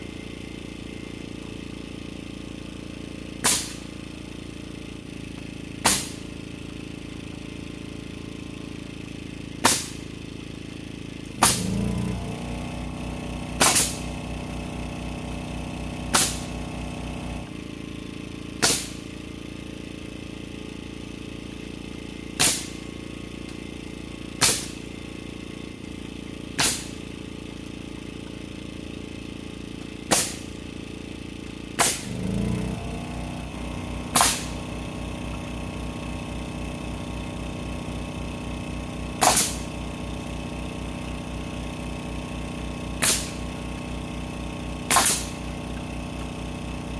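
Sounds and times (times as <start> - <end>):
machine hum: 0.0 - 46.9
low throb: 11.0 - 18.7, 31.5 - 46.9
nail gun cracks: 13.6 - 14.0, 22.4 - 22.8, 24.4 - 24.8, 26.6 - 27.0, 34.2 - 34.6, 39.2 - 39.7, 43.0 - 43.4, 44.9 - 45.4.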